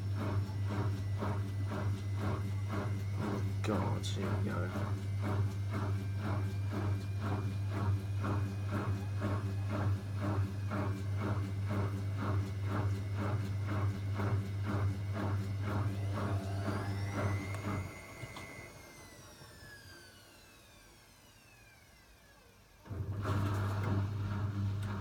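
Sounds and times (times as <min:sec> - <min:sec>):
washing machine motor humming: 0:00.0 - 0:21.8, 0:22.8 - 0:25.0
motor winding down whine: 0:15.5 - 0:24.0.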